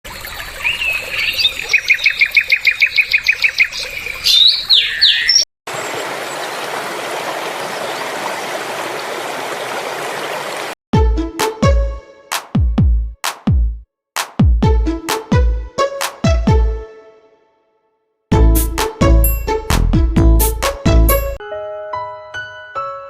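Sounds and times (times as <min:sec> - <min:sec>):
canary singing: 0:00.7 - 0:05.5.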